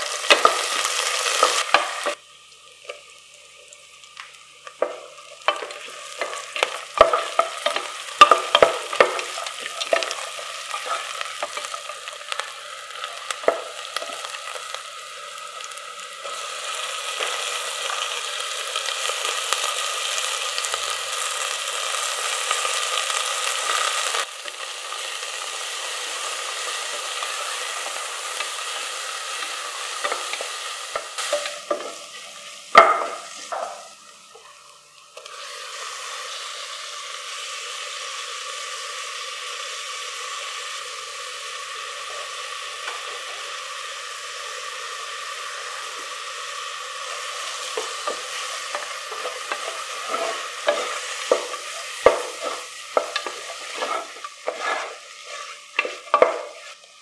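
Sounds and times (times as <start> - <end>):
onions sizzling in oil: 0.0 - 57.0
metal spoon stirring and scraping: 47.8 - 56.8.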